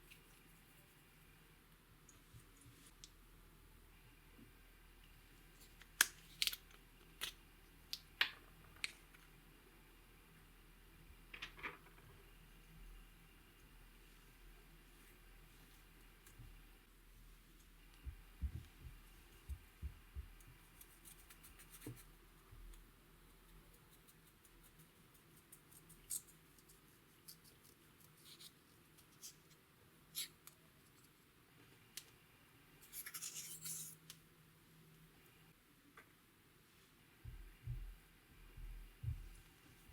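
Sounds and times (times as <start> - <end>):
soft low thumps: 18.0 - 20.4, 37.2 - 39.4.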